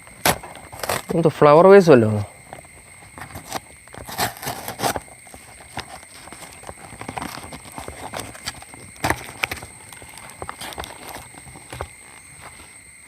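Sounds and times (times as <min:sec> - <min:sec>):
packaging crackling and rustling: 0:00.2 - 0:01.2, 0:02.4 - 0:12.8
parcel packaging tearing: 0:00.2 - 0:01.2, 0:03.1 - 0:11.9.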